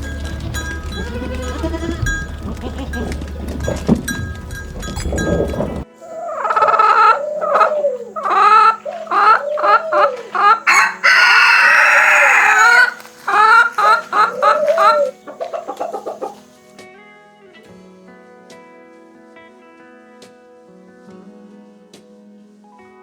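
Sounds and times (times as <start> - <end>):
chickens clucking and squawking: 5.3 - 16.6
rooster crowing: 6.0 - 16.4.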